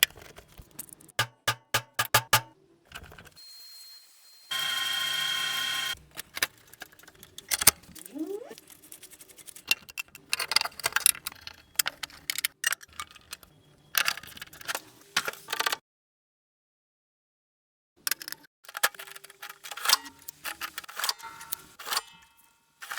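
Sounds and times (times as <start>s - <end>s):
cash register keys clacking: 9.5s - 15.7s, 18.1s - 22.0s.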